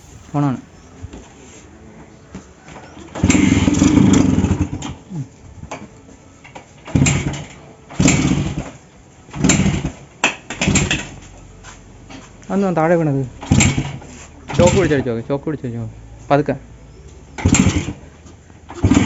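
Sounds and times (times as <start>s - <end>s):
engine being kick-started: 2.7s - 5.1s, 5.7s - 11.3s, 12.8s - 15.8s, 17.3s - 19.0s.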